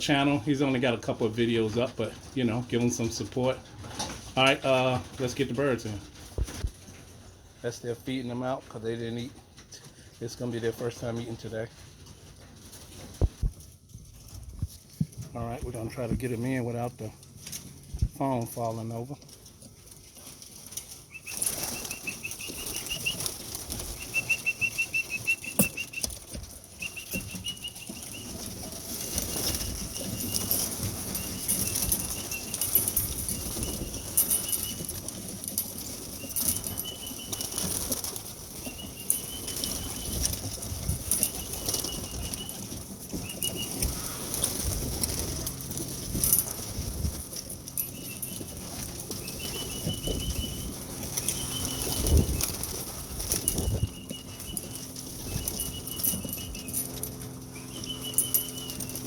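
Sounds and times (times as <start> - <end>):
pigeon wings flapping: 0.0 - 7.3, 19.2 - 59.0
warbling whistle: 21.1 - 26.2, 26.8 - 28.3, 57.6 - 58.9.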